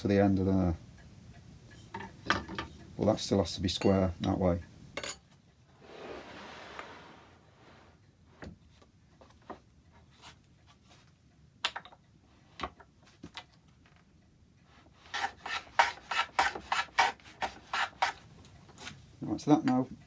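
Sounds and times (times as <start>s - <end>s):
hand tool scraping wood: 5.8s - 8.0s, 15.0s - 19.0s.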